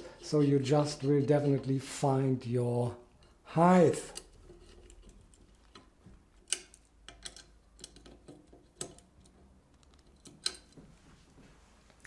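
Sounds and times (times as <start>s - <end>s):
metal parts clicking: 4.0s - 10.8s.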